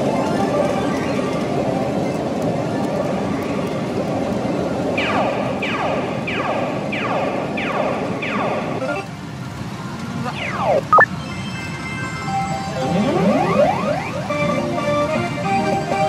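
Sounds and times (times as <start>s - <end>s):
pachinko machines and balls din: 0.0s - 1.9s, 5.0s - 9.2s, 10.3s - 11.1s, 11.7s - 16.0s
falling electronic tones: 10.2s - 11.1s, 12.5s - 15.0s.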